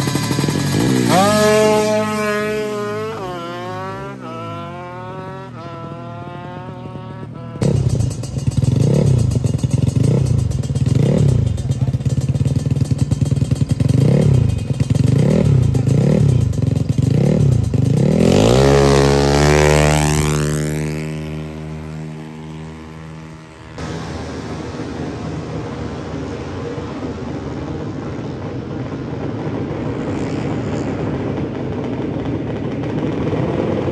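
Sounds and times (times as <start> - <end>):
motorcycle engines revving: 0.0 - 33.9
motorcycle passing at full throttle: 0.0 - 33.9.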